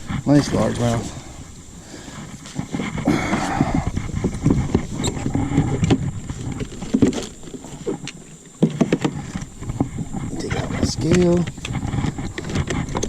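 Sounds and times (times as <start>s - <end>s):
fishing gear clunking and rattling: 0.0s - 13.0s
rustling: 0.0s - 13.0s.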